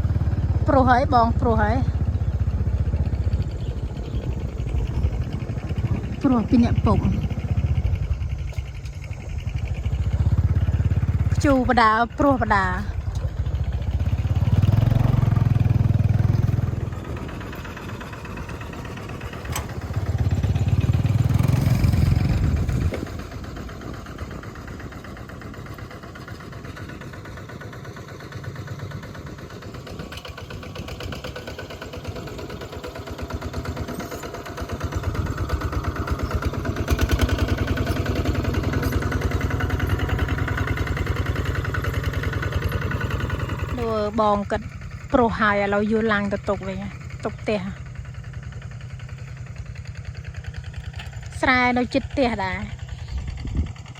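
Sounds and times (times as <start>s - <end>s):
loud low rumbles: 0.0s - 24.6s
small engine running: 0.0s - 53.9s.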